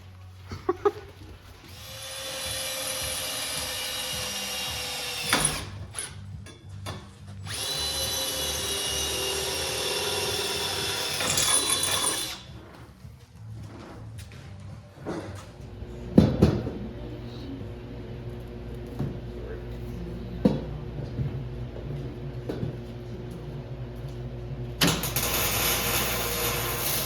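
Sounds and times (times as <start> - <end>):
power drill running: 1.7 - 6.2, 7.4 - 12.5, 24.8 - 27.0.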